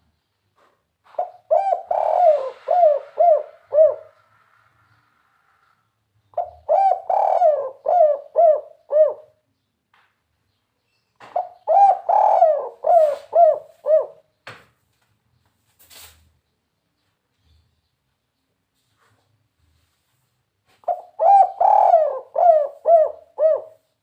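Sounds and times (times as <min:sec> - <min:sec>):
dove cooing: 0:01.1 - 0:04.5, 0:06.3 - 0:09.4, 0:11.2 - 0:14.3, 0:20.8 - 0:23.9
faint rustle: 0:14.8 - 0:16.4, 0:18.6 - 0:21.1.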